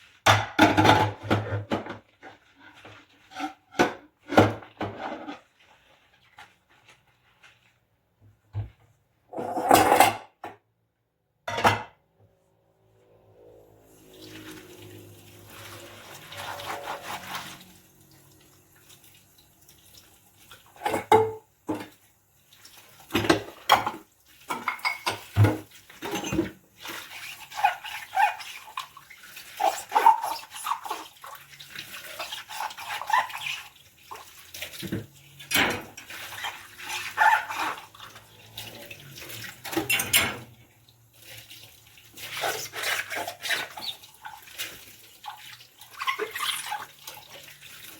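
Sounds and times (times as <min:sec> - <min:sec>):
dishes knocking and clinking: 0:00.3 - 0:02.0, 0:11.5 - 0:12.0, 0:20.8 - 0:21.9, 0:23.1 - 0:26.5
water running and splashing: 0:13.9 - 0:47.9.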